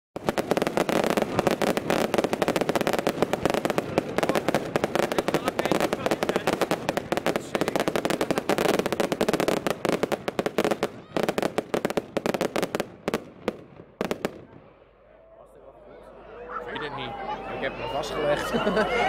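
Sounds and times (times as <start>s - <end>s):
fireworks crackling and popping: 0.2s - 14.7s.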